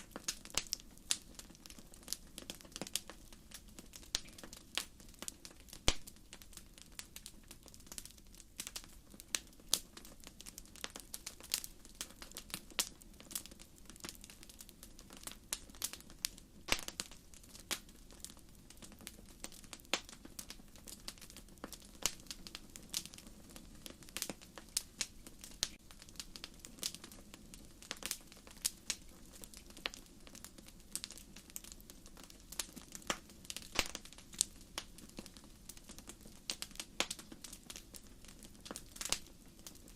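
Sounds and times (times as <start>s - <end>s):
flame rustling: 0.0s - 39.9s
firewood popping and snapping: 16.7s - 23.2s, 23.8s - 39.9s.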